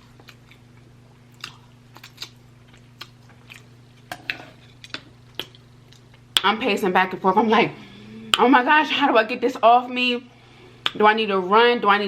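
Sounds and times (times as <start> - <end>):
chewing food: 0.0 - 6.4
faint low hum: 0.0 - 12.0.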